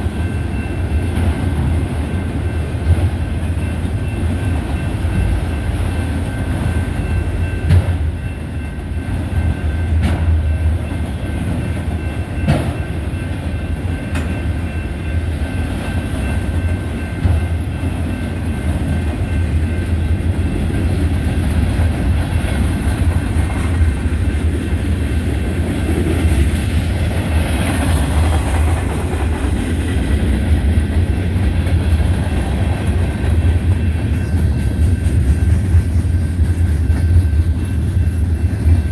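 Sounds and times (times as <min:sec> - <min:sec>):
freight train rumbling past: 0:00.0 - 0:38.9.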